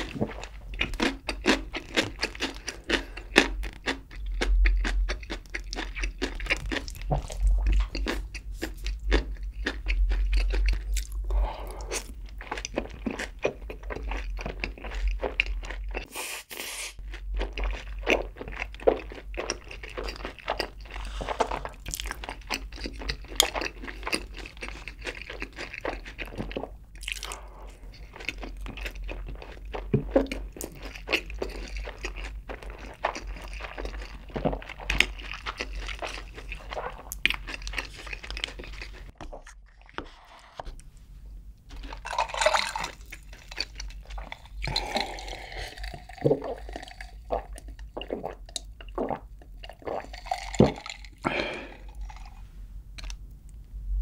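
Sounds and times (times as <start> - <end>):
crunchy chicken chewing: 0.0 - 16.1, 17.0 - 40.6.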